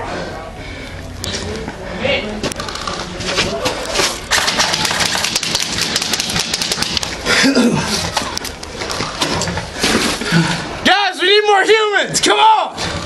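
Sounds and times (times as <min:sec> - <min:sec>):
airsoft guns firing: 0:04.3 - 0:07.3.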